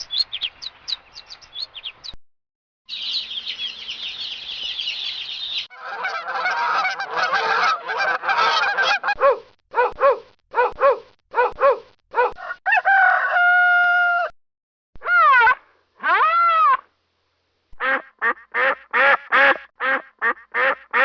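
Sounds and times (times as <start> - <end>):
geese honking: 5.4 - 9.2.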